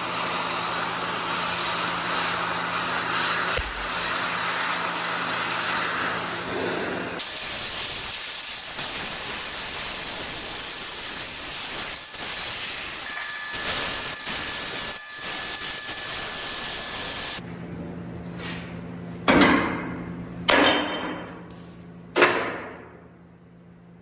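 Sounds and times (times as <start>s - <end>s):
cutting torch jet hissing: 0.0s - 17.4s.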